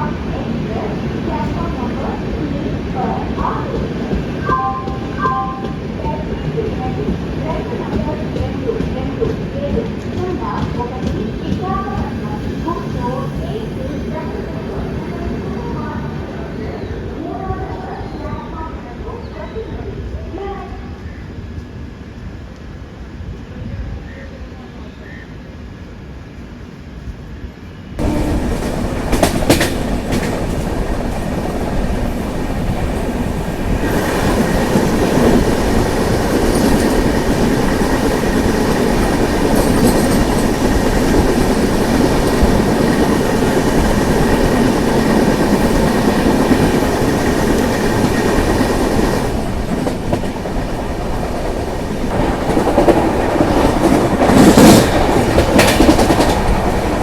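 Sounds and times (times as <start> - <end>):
train wheels clattering over rail joints: 28.0 - 57.0.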